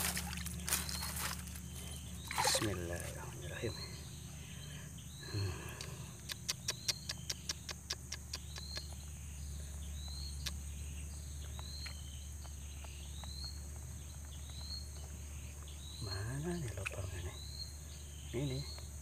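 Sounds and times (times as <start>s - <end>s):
low steady rumble: 0.0s - 7.1s
bird calling: 0.0s - 13.8s, 14.4s - 19.0s
sharp clicks: 5.7s - 9.0s.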